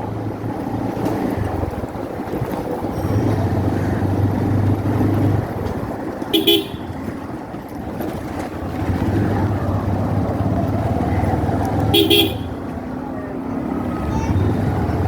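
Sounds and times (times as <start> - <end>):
motorcycle engine humming: 0.0 - 15.0
vehicle horn beep: 6.3 - 7.0, 11.9 - 12.7.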